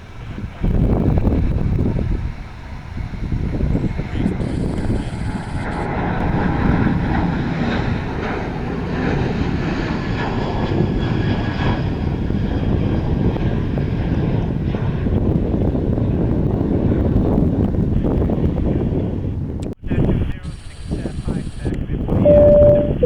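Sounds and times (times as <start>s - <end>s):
faint engine whine: 0.0s - 11.6s, 20.3s - 23.0s
airliner engines rumbling: 0.0s - 23.0s.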